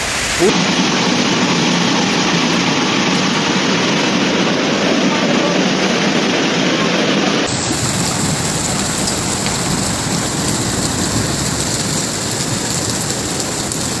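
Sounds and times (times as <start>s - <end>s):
heavy rain pouring: 0.0s - 14.0s
sharp ticks of hailstones: 7.5s - 14.0s.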